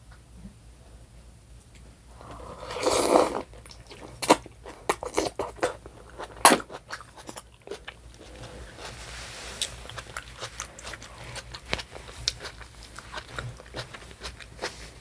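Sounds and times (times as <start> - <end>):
food crunching: 2.3 - 15.0
biting and chewing: 2.7 - 9.0, 9.6 - 15.0.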